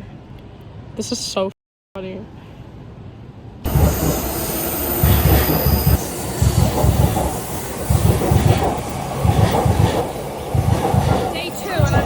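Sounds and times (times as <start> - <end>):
train rumbling on rails: 3.6 - 12.0
thin high whine: 3.7 - 10.3.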